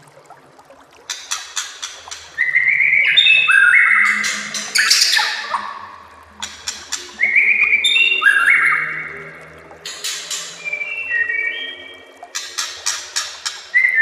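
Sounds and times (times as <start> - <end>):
bird singing clicks and whistles: 6.4 - 8.9, 9.8 - 14.0.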